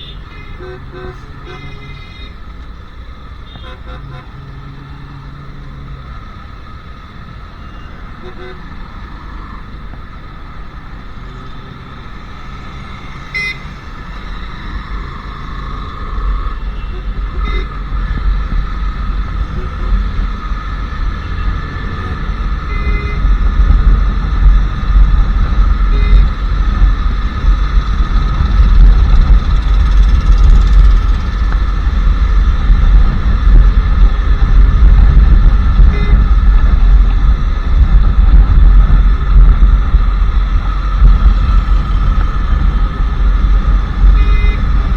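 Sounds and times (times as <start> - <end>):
horn toots: 0.0 - 2.4, 3.4 - 4.8, 7.6 - 9.2, 12.6 - 37.2, 43.6 - 44.9
motorcycle engine rumble: 0.0 - 44.9
road noise: 0.0 - 44.9.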